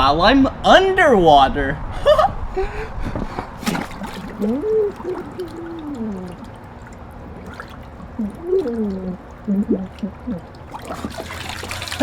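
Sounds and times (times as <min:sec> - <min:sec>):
sharp water splash: 0:03.6 - 0:09.1, 0:10.6 - 0:12.0
water splashing and gurgling: 0:03.6 - 0:12.0
muffled gliding vocal sounds: 0:04.4 - 0:06.6.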